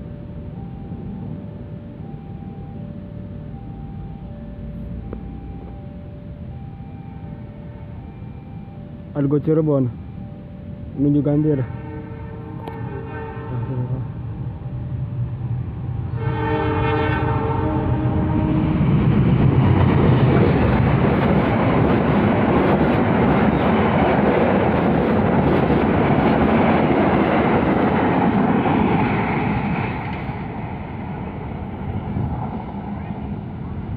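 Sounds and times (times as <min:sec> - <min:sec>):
train horn: 0:11.3 - 0:14.2, 0:16.0 - 0:19.0
train wheels rumbling on rails: 0:12.4 - 0:33.9.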